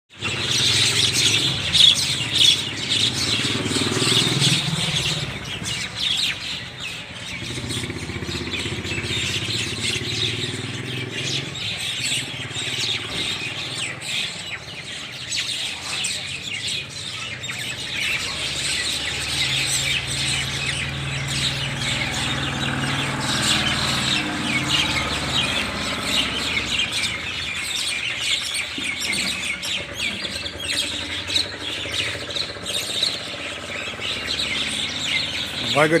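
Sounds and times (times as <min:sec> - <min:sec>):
mynas chirping and calling: 0:00.1 - 0:36.0
motor vehicle engine hum: 0:17.1 - 0:36.0.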